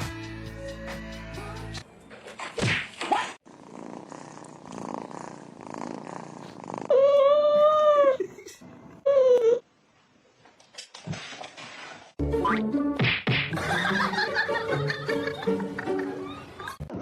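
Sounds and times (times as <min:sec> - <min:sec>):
cat purring: 0:03.5 - 0:07.0.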